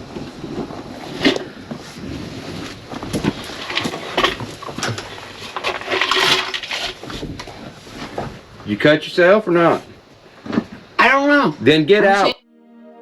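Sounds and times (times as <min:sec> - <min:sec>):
scraping or rustling: 0:00.0 - 0:08.8.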